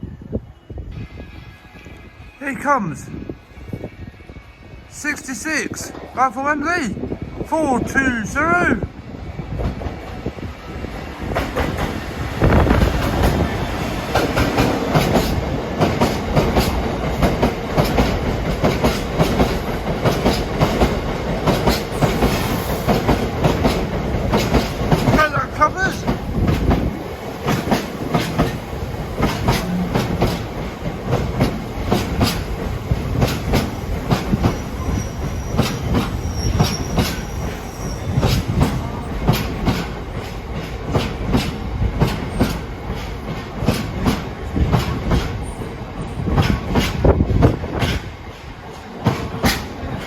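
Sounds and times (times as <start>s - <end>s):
freight train rolling past: 0.0s - 50.0s
wheels clacking over rail joints: 12.8s - 37.6s
faint high wheel squeal: 34.5s - 38.4s.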